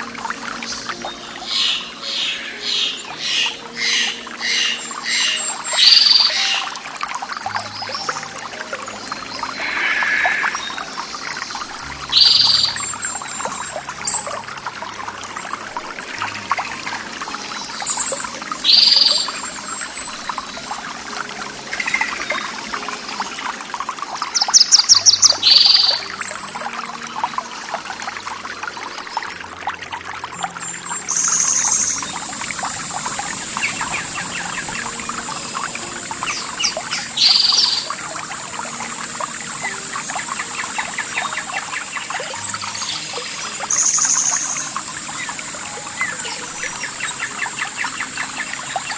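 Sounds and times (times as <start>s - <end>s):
steady high-pitched tone: 0.0s - 14.7s
birds calling: 0.0s - 48.9s
water trickling and pouring: 0.0s - 48.9s.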